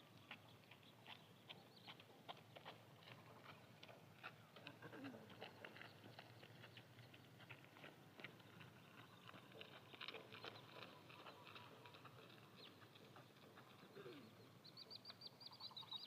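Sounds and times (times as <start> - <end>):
birds chirping: 4.4 - 16.0.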